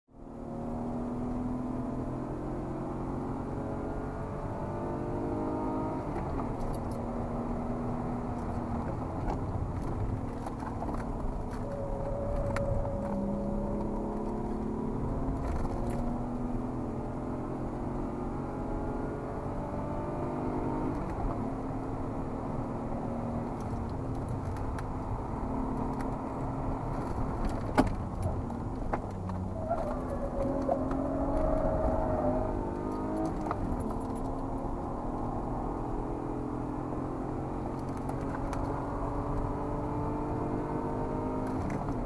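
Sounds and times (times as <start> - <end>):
car engine accelerating: 0.2 - 42.0.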